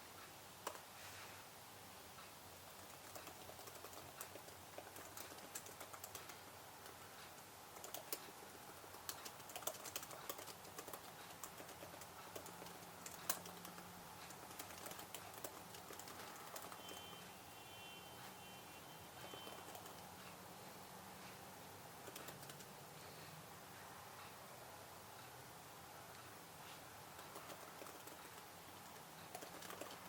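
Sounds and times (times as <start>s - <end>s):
computer keyboard typing: 2.8s - 17.4s, 19.1s - 20.3s, 22.0s - 22.8s, 27.1s - 30.0s.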